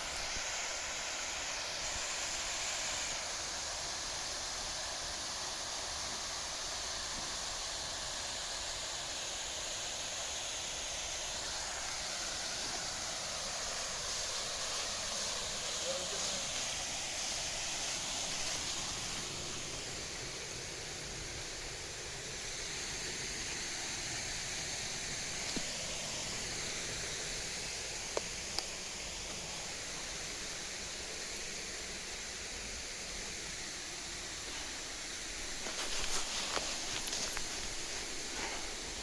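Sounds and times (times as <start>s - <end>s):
flowing water rushing: 0.0s - 39.0s.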